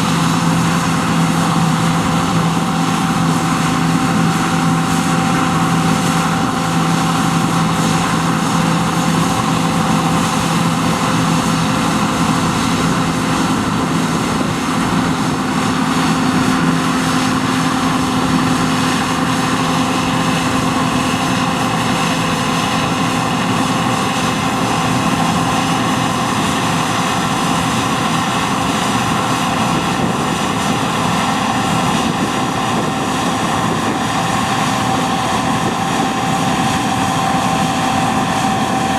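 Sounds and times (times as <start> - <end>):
combine harvester engine drone: 0.0 - 38.9.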